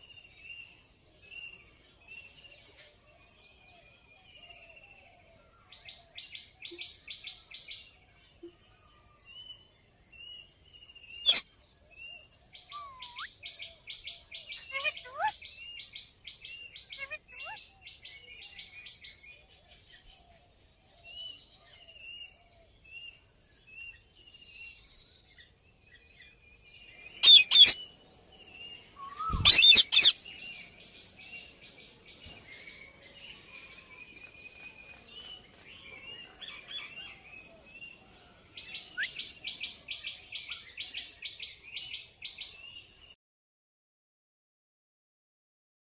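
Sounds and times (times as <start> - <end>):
parrot chattering and chirping: 11.2 - 11.4, 12.7 - 13.3, 14.6 - 15.4, 16.9 - 17.6, 27.2 - 27.8, 29.2 - 30.2
parrot harsh screeches: 27.2 - 27.8, 29.2 - 30.2.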